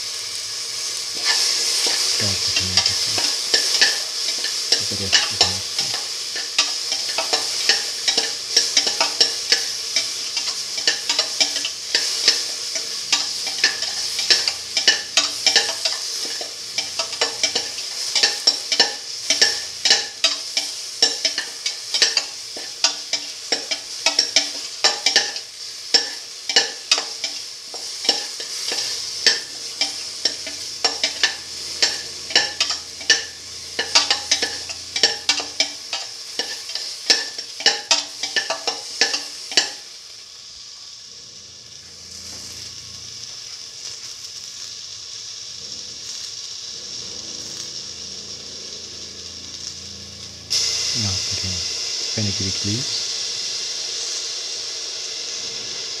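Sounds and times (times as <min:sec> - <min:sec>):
vegetables sizzling in oil: 0:00.0 - 0:56.0
metal spatula scraping a pot: 0:06.4 - 0:39.8.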